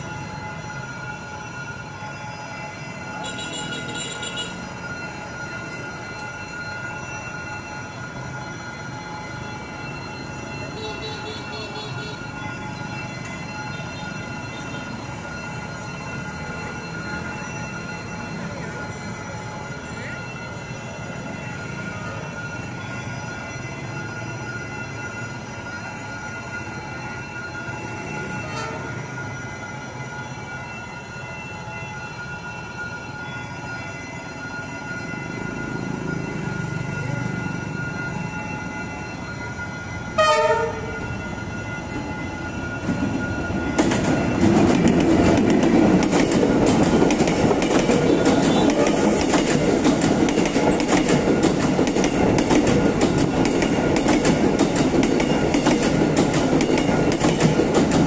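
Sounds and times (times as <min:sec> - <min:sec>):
train horn blasts: 0:28.4 - 0:29.1, 0:40.1 - 0:41.1
train wheels clattering over rails: 0:42.8 - 0:58.0.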